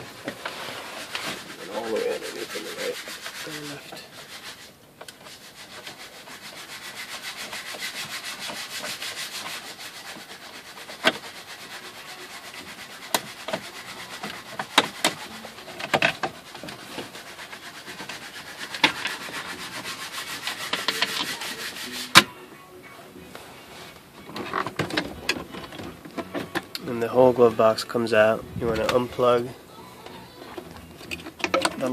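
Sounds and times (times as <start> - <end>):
tool rasping and rubbing: 0.0 - 22.3.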